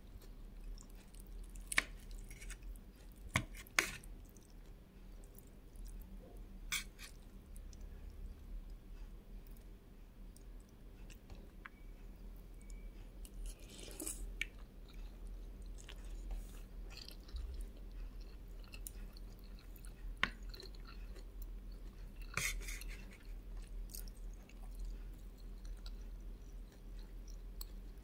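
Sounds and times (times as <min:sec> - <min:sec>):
person chewing wetly: 0:12.6 - 0:28.0.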